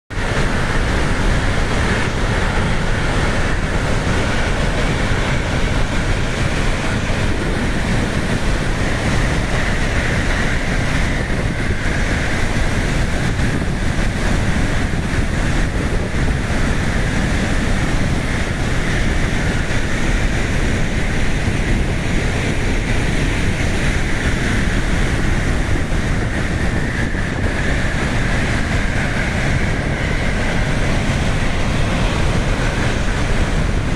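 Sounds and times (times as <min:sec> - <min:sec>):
wind buffeting microphone: 0:00.1 - 0:33.9
floodwater rushing: 0:28.1 - 0:33.9.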